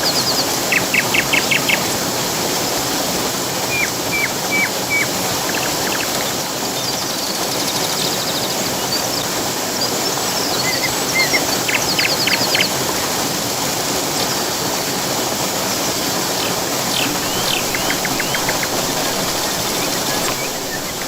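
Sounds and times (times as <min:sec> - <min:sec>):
birds chirping and trilling: 0:00.0 - 0:02.1, 0:03.6 - 0:09.2, 0:16.4 - 0:21.0
rushing water: 0:00.0 - 0:21.0.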